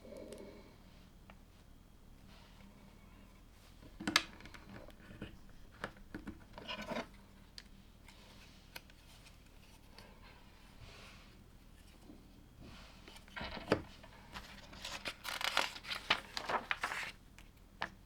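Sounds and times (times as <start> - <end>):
rustle of plastic pieces: 14.3 - 17.2.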